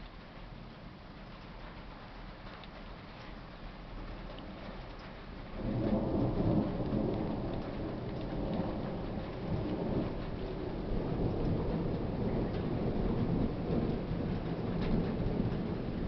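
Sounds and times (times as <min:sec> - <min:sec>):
steady rain: 0:00.0 - 0:16.0
thunder rumbling: 0:04.0 - 0:16.0.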